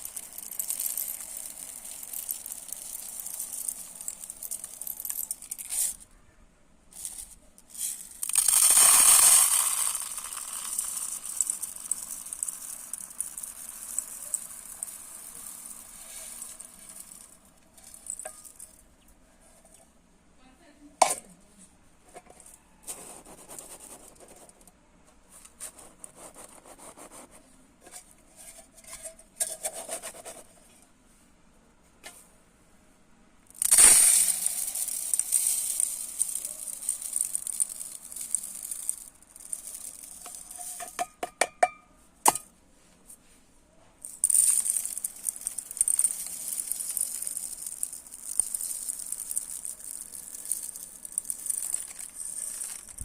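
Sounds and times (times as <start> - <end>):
rice pouring hiss: 0.0 - 6.0, 7.7 - 18.6, 33.6 - 40.7, 44.2 - 53.0
rice scooped with scraping: 7.0 - 18.6, 44.2 - 53.0.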